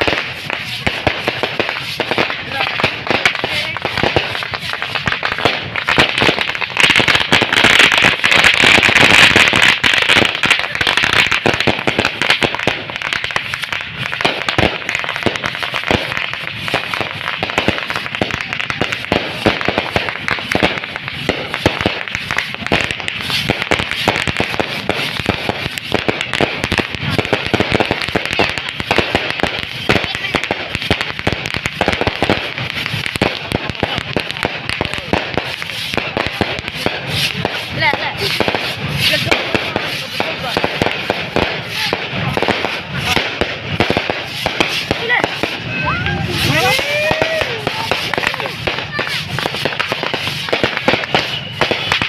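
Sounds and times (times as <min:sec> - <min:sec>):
firecrackers crackling: 0:00.0 - 0:52.0.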